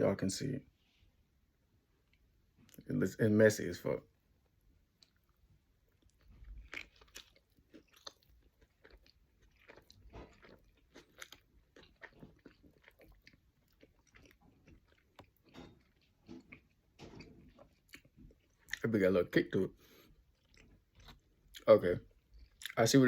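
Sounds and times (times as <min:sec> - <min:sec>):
chewing with mouth noises: 0:04.9 - 0:19.0, 0:19.8 - 0:23.0.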